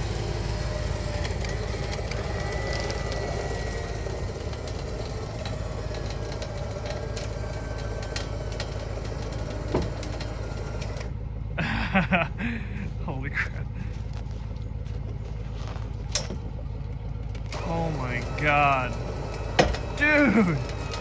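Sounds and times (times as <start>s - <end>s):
electric winch droning: 0.0s - 21.0s
clicks and creaks: 0.5s - 11.1s.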